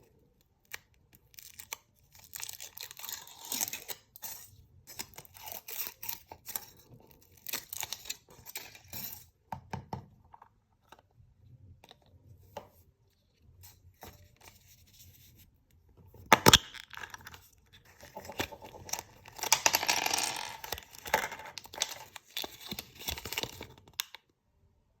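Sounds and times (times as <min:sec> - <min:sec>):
foil wrappers crinkling and tearing: 0:01.3 - 0:04.1, 0:18.0 - 0:23.9.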